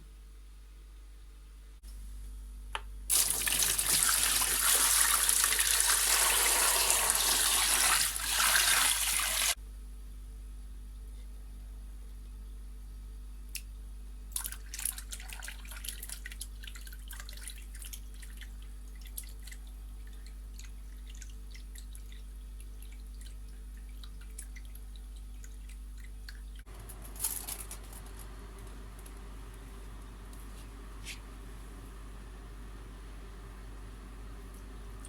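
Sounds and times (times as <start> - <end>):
liquid dripping and splashing: 3.1 - 9.6, 14.3 - 26.7.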